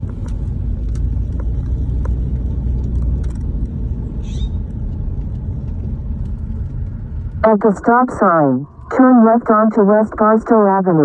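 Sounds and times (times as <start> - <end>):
car driving rumble: 0.0 - 9.2.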